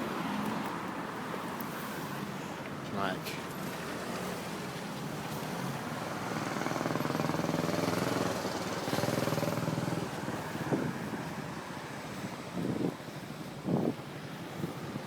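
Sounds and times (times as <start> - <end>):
vehicle engine passing by: 3.5 - 12.9.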